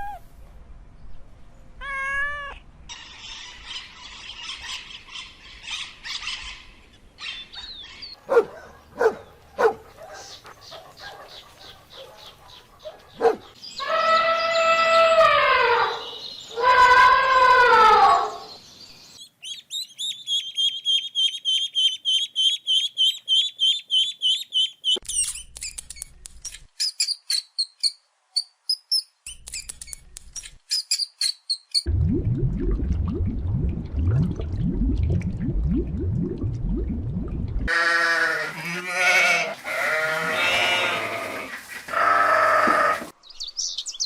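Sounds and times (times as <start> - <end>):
bird chirping: 18.4 - 31.9, 43.2 - 44.0.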